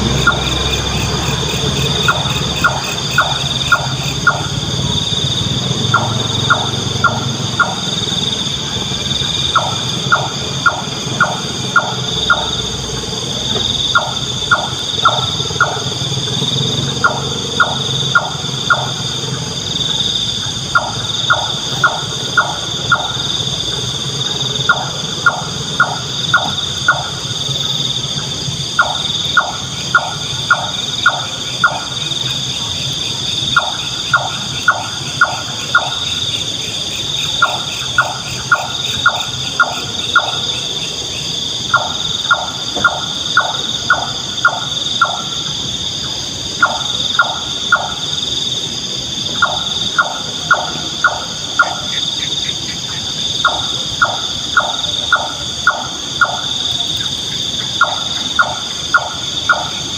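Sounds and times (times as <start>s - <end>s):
nightjar calling: 0.0s - 28.0s, 49.2s - 59.9s
high-pitched drone: 0.0s - 36.2s.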